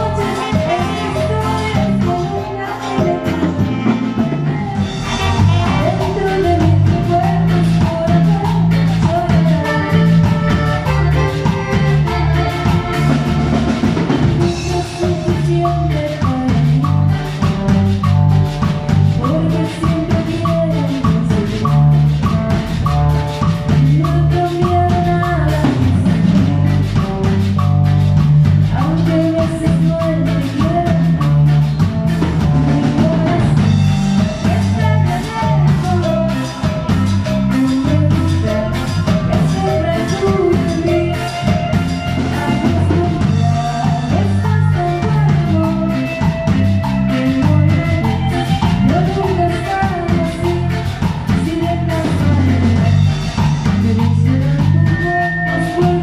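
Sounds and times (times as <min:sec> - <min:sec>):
bright melodic instrument: 0:00.0 - 0:17.6, 0:31.0 - 0:56.0
bass line: 0:00.0 - 0:56.0
drum kit and percussion: 0:00.0 - 0:56.0.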